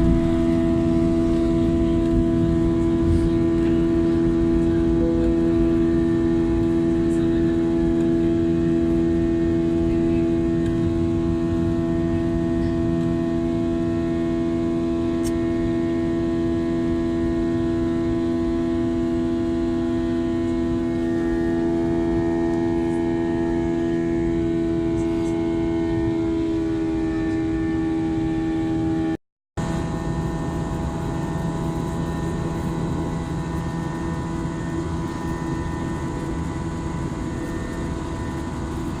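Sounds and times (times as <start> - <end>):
jet engine drone in cabin: 0.0 - 39.0.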